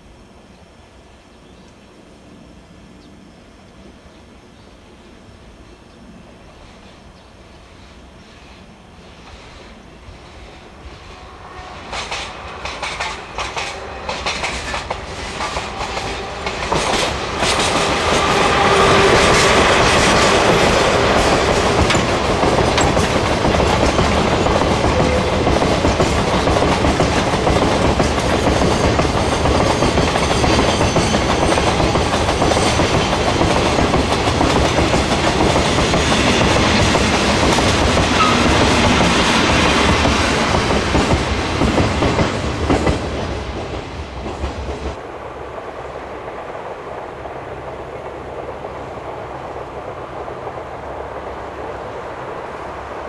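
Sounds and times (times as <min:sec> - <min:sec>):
freight train passing: 0:00.0 - 0:53.0
wheels clicking over rail joints: 0:11.9 - 0:45.0.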